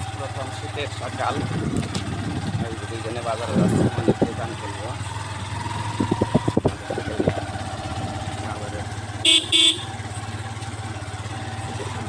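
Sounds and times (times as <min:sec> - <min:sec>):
motorcycle engine running: 0:00.0 - 0:12.0
horn honks: 0:09.2 - 0:10.2.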